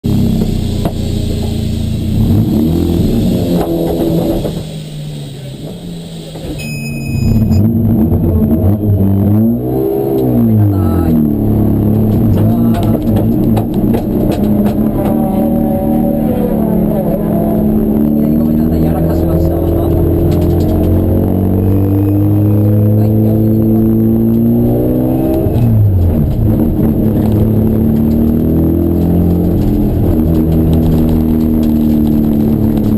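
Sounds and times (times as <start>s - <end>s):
race car engines revving: 0.0s - 32.9s.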